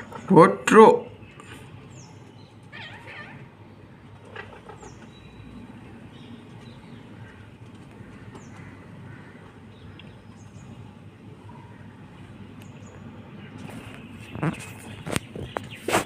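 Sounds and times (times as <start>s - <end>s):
faint high bird chirps: 4.7s - 7.0s.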